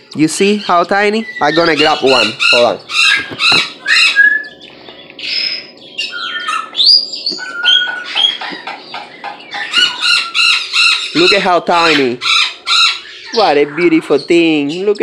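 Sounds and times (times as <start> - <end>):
birds squawking: 0.0 - 15.0
whistled bird notes: 0.4 - 12.0.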